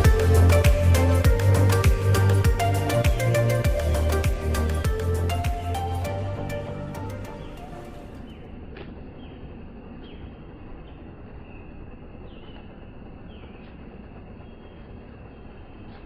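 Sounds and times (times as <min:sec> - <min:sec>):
bird chirping: 0:00.0 - 0:08.6, 0:09.2 - 0:13.8
steady rushing noise: 0:00.0 - 0:16.0.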